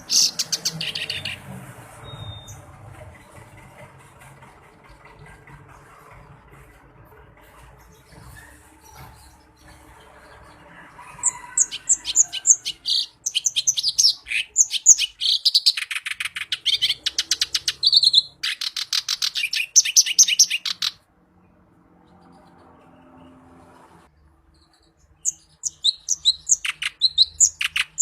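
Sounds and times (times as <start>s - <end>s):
warbler singing: 0.0s - 3.4s, 7.8s - 21.0s, 24.5s - 28.0s.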